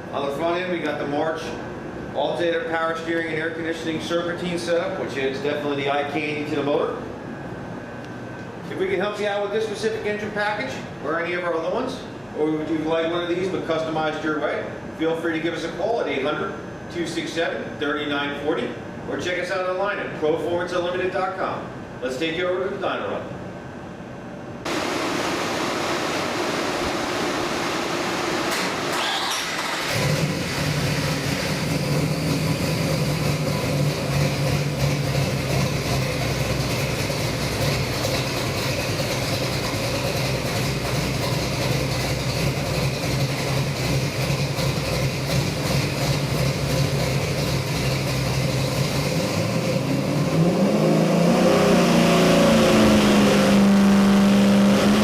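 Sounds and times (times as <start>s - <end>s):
engine running on dyno: 24.6s - 55.0s.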